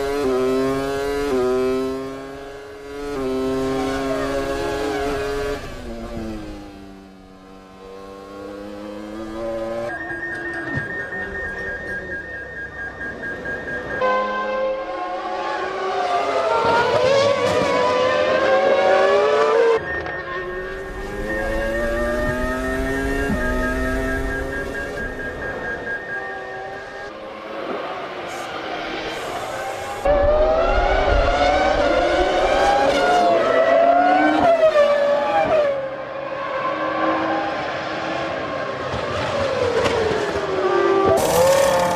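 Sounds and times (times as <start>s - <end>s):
racing cars passing at high revs: 0.0s - 10.0s, 13.8s - 41.9s
steady high tone: 19.8s - 27.4s.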